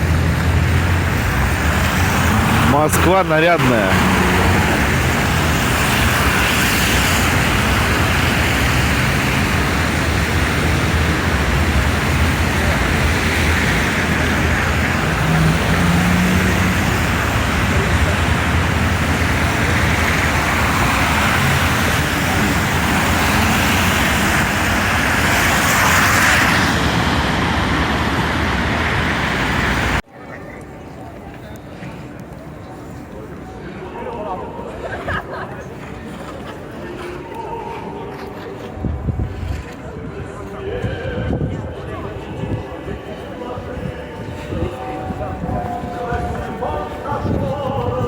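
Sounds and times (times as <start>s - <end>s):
cars passing: 0.0s - 30.0s
city street traffic: 0.0s - 48.0s.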